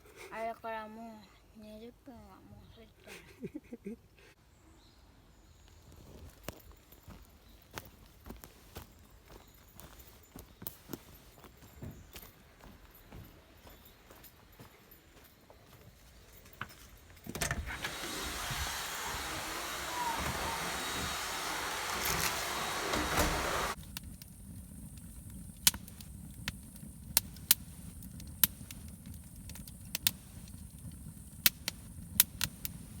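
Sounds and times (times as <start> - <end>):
steady rushing hiss: 17.4 - 33.0
wood fire crackling and popping: 23.2 - 33.0.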